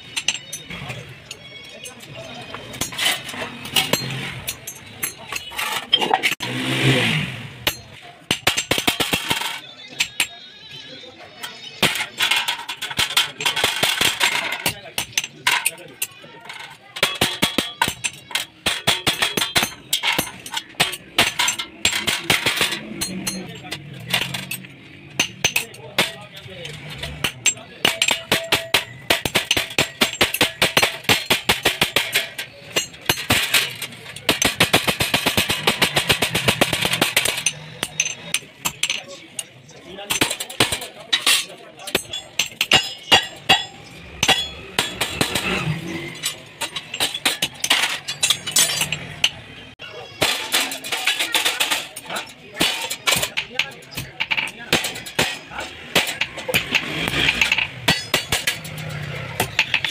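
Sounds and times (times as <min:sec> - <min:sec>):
metal parts clanking: 0:00.0 - 0:07.0, 0:07.6 - 0:59.9
hammer striking sheet metal: 0:07.6 - 0:10.3, 0:17.0 - 0:26.2, 0:27.1 - 0:39.0, 0:40.1 - 0:49.4, 0:50.1 - 0:59.9.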